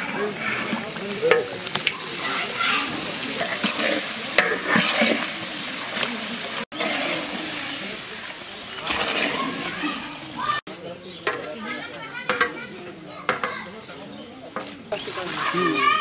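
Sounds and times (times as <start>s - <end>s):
metal ladle scraping pan: 0.0s - 10.6s
onions sizzling in hot oil: 0.0s - 11.5s
ladle clinking: 3.1s - 6.1s.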